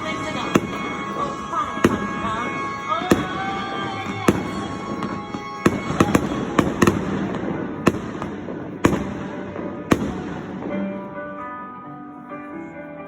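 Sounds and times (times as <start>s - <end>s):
fireworks bangs: 0.0s - 11.4s
fireworks crackle: 0.0s - 11.4s
faint music: 0.0s - 13.0s.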